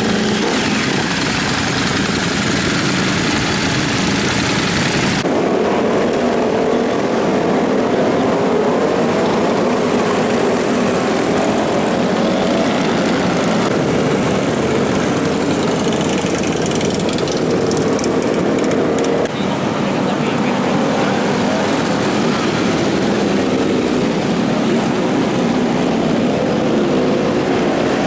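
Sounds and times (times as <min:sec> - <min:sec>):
motorcycle engines running: 0:00.0 - 0:28.0.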